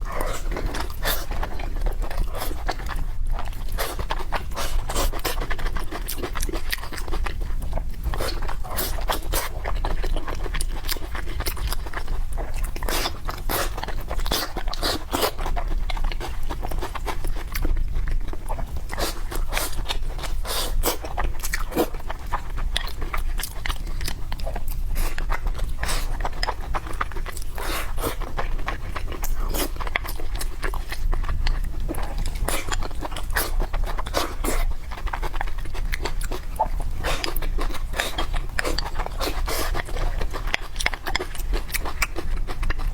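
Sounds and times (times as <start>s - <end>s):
person chewing and crunching food: 0.0s - 42.9s.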